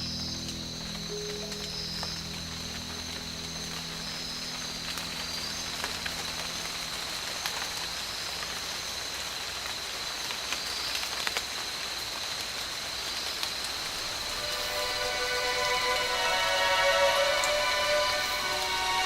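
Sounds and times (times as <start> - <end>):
high whine: 0.0 - 9.2, 13.7 - 19.0
water hissing: 13.6 - 19.0.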